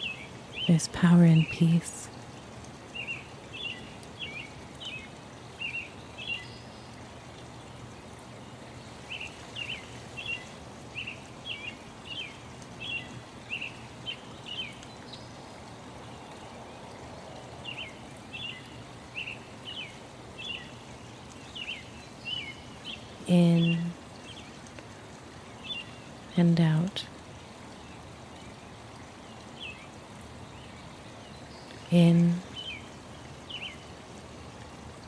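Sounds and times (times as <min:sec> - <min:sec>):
steady background hiss: 0:00.0 - 0:35.0
birds chirping: 0:17.6 - 0:24.5.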